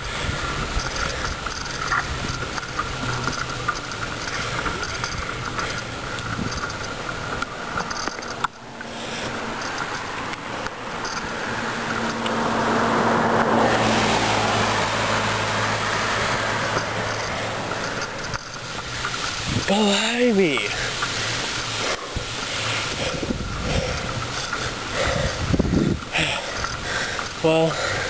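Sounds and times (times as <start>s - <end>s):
car passing by: 8.7s - 19.7s.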